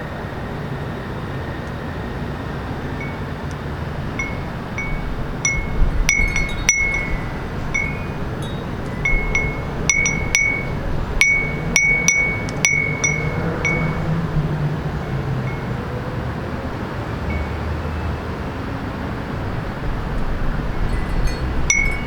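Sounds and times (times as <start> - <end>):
low hum of city traffic: 0.0 - 22.0
wind chime ringing: 3.0 - 3.3, 4.0 - 14.4, 20.7 - 22.0.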